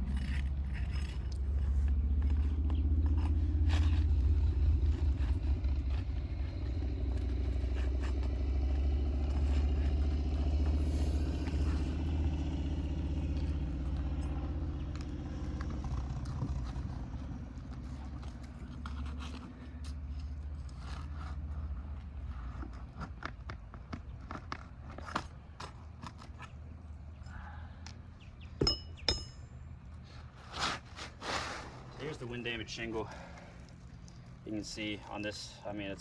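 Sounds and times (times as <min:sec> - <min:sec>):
pry bar scraping and clicking: 0:22.4 - 0:26.7.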